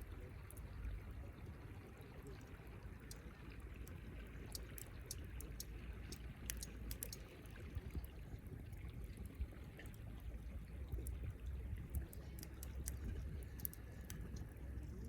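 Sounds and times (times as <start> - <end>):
low steady rumble: 0.0 - 15.0
campfire crackling and popping: 3.8 - 8.2, 10.8 - 15.0.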